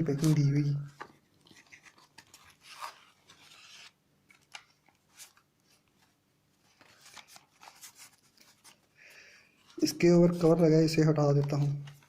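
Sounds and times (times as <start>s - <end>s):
packaging scraping: 1.4s - 5.4s.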